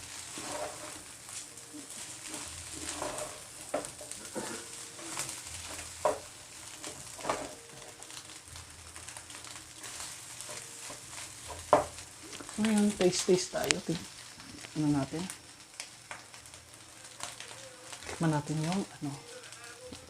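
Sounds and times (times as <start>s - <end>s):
spatula scraping frying pan: 0.0s - 12.6s
faint sizzle: 0.0s - 20.0s.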